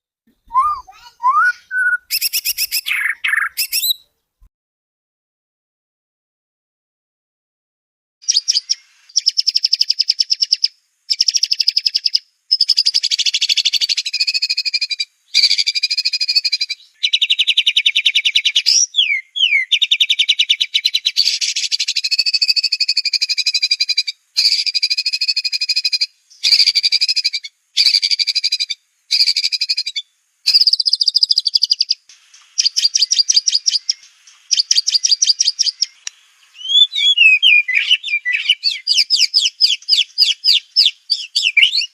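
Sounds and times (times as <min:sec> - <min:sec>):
sliding whistled bird notes: 0:00.5 - 0:04.0, 0:32.6 - 0:41.9
bird singing buzzy trilled phrases: 0:00.5 - 0:04.1, 0:08.2 - 0:32.0, 0:32.6 - 0:41.9.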